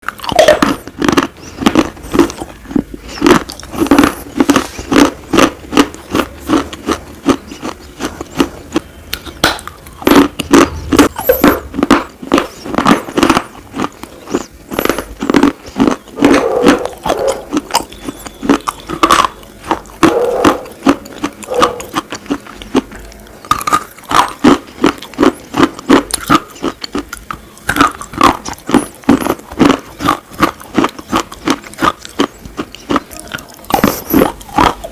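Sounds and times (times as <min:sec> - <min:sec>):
slate pieces crunching being chewed: 0:00.0 - 0:34.9.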